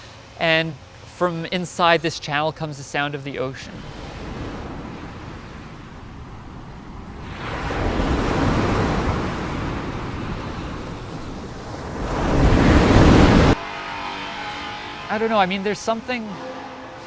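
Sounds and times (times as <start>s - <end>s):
ocean waves rushing in: 3.0s - 13.6s.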